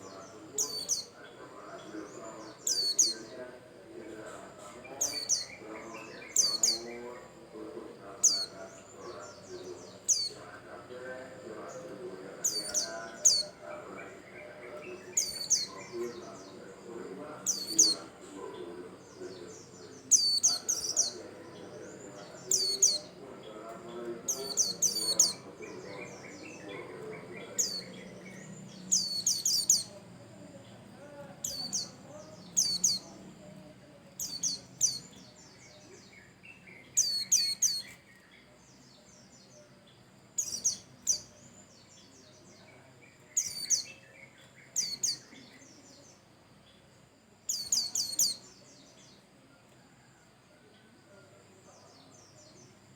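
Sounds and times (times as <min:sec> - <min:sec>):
bird chirping: 0:00.0 - 0:49.4.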